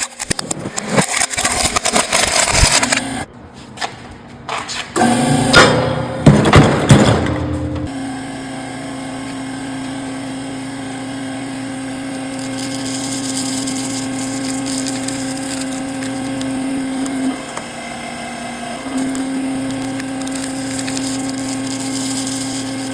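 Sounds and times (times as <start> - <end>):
hydraulic press humming: 5.0 - 22.9.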